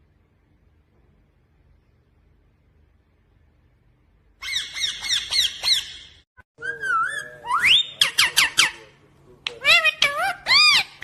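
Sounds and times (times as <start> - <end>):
parrot chirping and whistling: 4.4 - 8.7.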